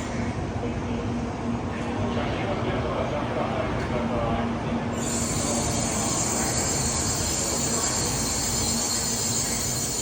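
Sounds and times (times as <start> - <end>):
train rumbling on rails: 0.0 - 10.0
high-pitched hiss or squeal: 5.0 - 10.0.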